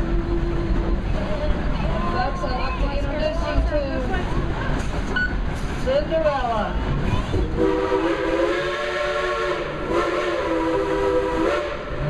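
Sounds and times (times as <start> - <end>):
steam locomotive chime whistle: 7.6 - 12.0.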